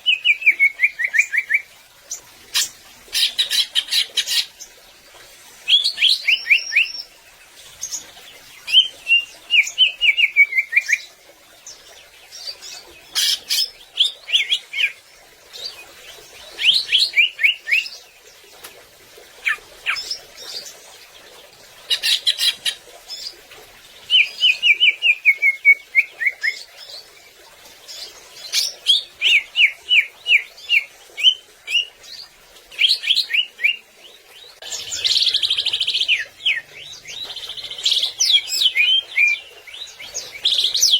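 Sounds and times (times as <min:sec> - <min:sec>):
bird chirping song: 0:32.8 - 0:40.9.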